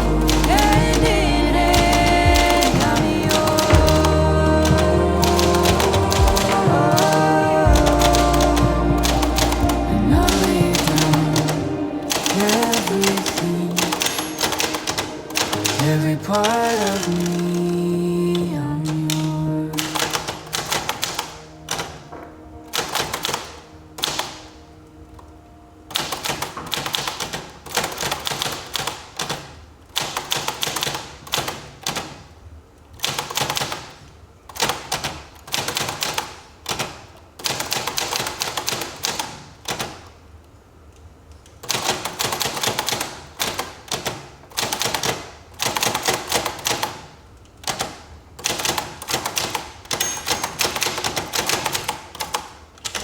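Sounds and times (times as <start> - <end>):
typewriter key strikes: 47.7 - 53.0.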